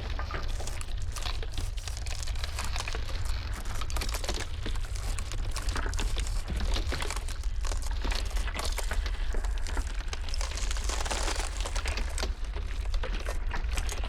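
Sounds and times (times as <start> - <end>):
ice cracking: 0.1 - 14.0.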